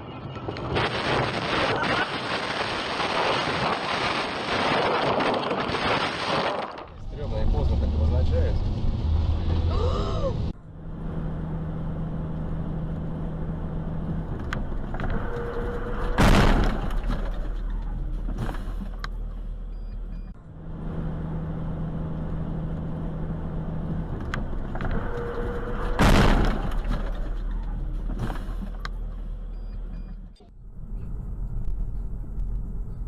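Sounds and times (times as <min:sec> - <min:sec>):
car road noise: 0:00.0 - 0:33.0
loud collision bang: 0:25.9 - 0:27.0.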